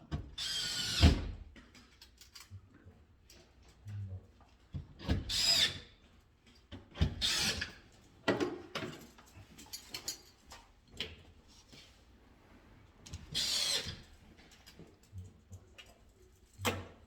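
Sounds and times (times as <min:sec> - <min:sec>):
power drill running: 0:13.4 - 0:13.9.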